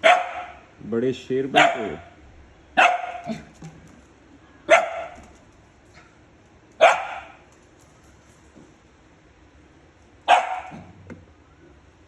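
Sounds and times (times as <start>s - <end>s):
puppy barking: 0.0s - 0.7s, 1.5s - 2.1s, 2.8s - 3.5s, 4.6s - 5.3s, 6.8s - 7.4s, 10.3s - 11.0s.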